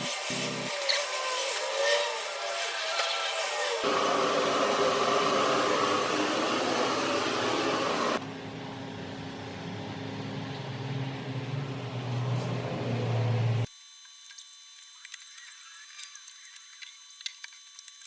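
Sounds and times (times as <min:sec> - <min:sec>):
machine whirring: 0:00.8 - 0:08.2.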